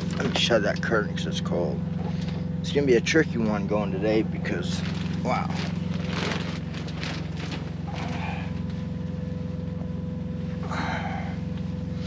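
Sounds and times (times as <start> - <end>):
diesel truck engine idling: 0.0 - 12.0
rustling noises: 4.6 - 8.8.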